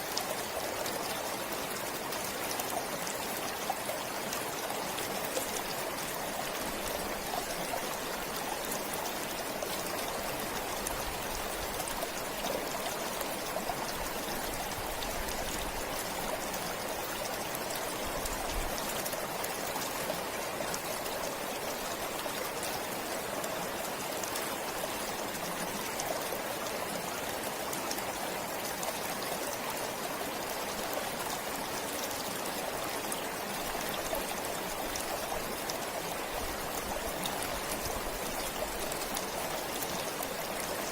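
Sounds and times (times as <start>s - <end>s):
stream flowing: 0.0s - 40.9s.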